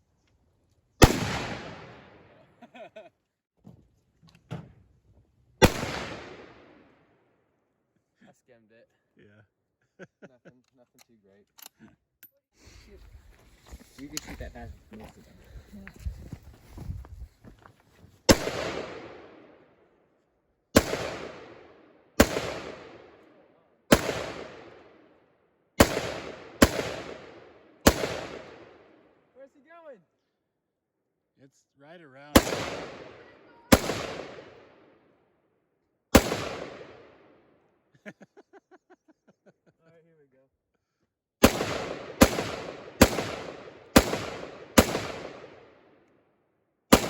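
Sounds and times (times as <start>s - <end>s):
gunshots with echo: 1.0s - 2.4s, 5.6s - 6.9s, 18.3s - 19.6s, 20.8s - 23.3s, 23.9s - 25.0s, 25.8s - 29.0s, 32.3s - 34.9s, 36.1s - 37.3s, 41.4s - 45.7s.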